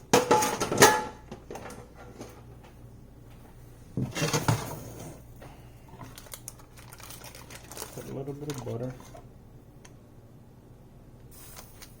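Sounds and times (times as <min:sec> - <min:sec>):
metal cookware clanking: 0:00.1 - 0:02.4.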